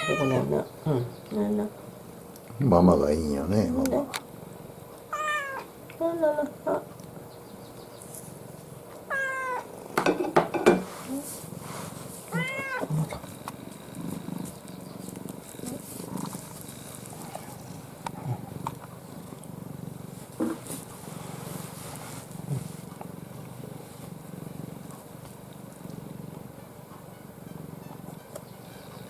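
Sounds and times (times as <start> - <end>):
cat meowing: 0.0 - 0.6, 5.1 - 5.7, 9.1 - 9.7, 12.3 - 13.1
cat purring: 0.0 - 29.0.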